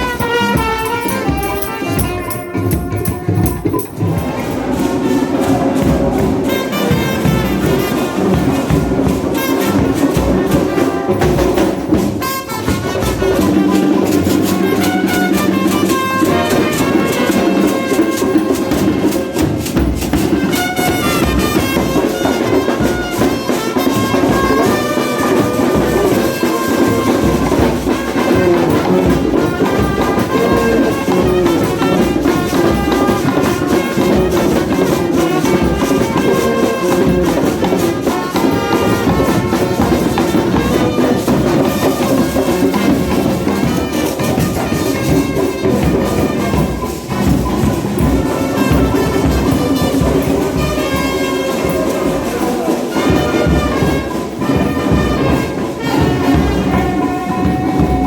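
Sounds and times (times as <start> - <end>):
drums and percussion: 0.0 - 58.0
horns playing a melody: 0.0 - 58.0.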